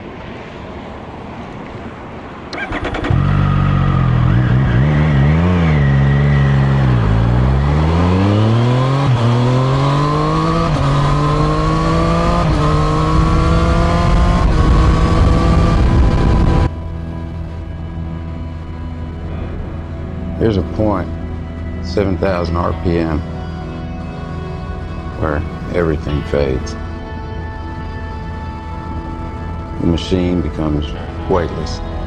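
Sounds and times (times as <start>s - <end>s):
engine starter cranking: 2.5s - 3.3s
engine revving and accelerating: 2.6s - 16.7s.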